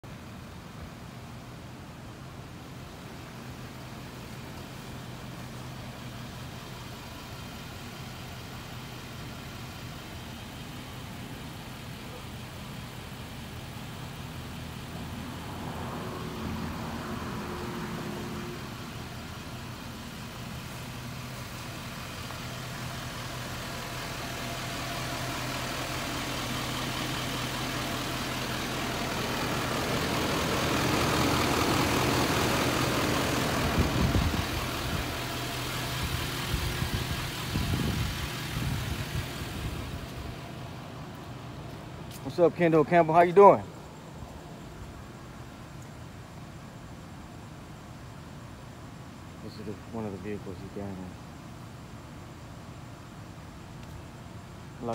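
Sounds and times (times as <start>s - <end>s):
engine idling with low hum: 0.0s - 54.9s.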